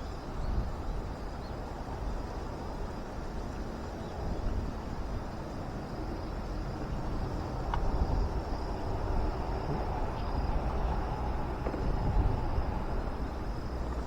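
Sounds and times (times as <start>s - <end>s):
wind rumbling on microphone: 0.0s - 14.0s
light ticks: 7.6s - 7.9s.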